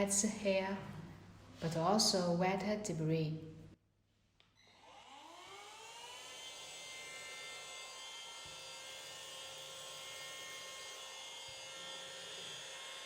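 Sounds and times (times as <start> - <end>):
handheld vacuum cleaner whining: 4.6 - 13.0.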